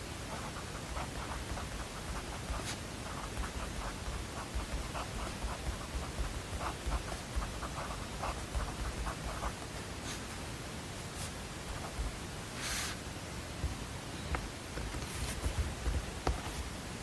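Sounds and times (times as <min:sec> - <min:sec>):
pen scratching on paper: 0:00.3 - 0:10.3, 0:11.2 - 0:13.0.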